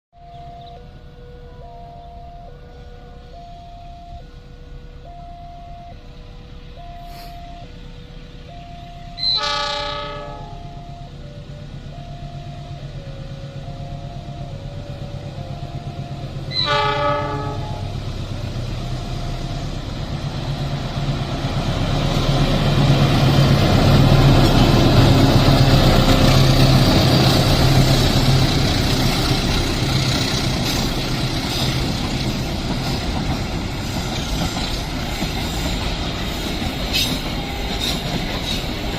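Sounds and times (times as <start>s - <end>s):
level crossing alarm: 0.2s - 20.0s, 37.2s - 38.0s
locomotive engine: 0.2s - 38.9s
train horn: 8.8s - 18.1s
train wheels rumbling and clattering: 17.8s - 38.9s.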